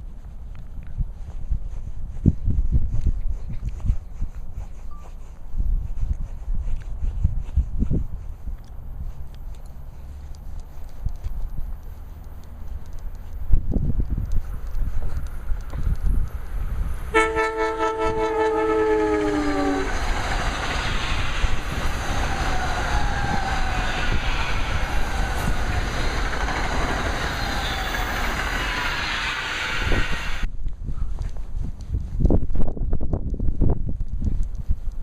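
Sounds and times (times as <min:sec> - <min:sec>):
wheel and rail noise: 0:00.0 - 0:30.5
train horn: 0:17.1 - 0:20.0.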